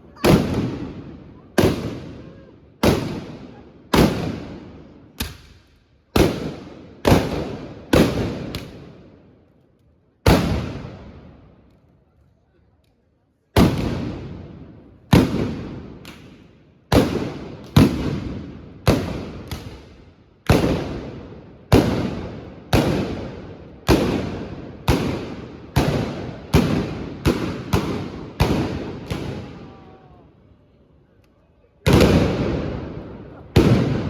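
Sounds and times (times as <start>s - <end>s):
blunderbusses firing blasts: 0.2s - 2.2s, 20.5s - 29.7s, 31.9s - 34.0s
echo of gunshots: 0.2s - 9.2s, 10.2s - 11.5s, 13.6s - 29.8s, 31.9s - 34.0s.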